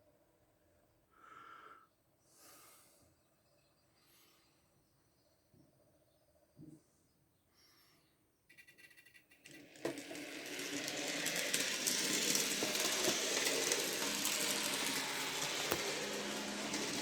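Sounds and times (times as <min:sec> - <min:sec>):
model train ticking: 0:08.5 - 0:17.0
model train motor whirring: 0:08.8 - 0:17.0.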